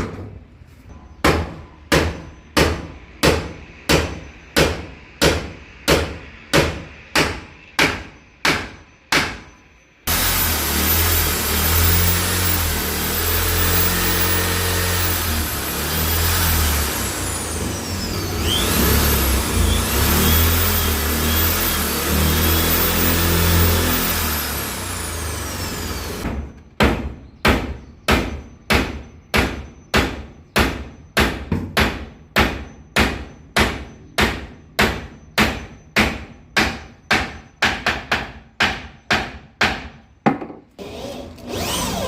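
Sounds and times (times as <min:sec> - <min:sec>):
hammer driving a nail: 0:01.2 - 0:09.5, 0:19.8 - 0:40.6
electric drill whining: 0:10.1 - 0:26.2, 0:40.8 - 0:42.0.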